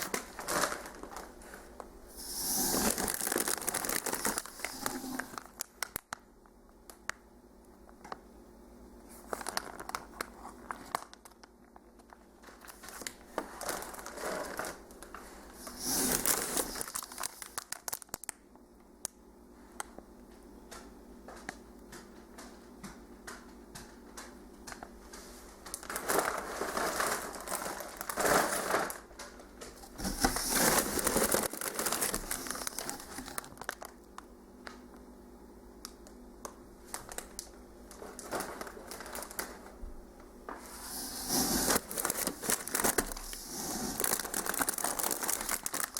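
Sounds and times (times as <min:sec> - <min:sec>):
packaging crinkling and rustling: 0:00.0 - 0:06.2, 0:09.1 - 0:18.4, 0:25.6 - 0:34.8, 0:36.4 - 0:39.8, 0:40.5 - 0:45.9.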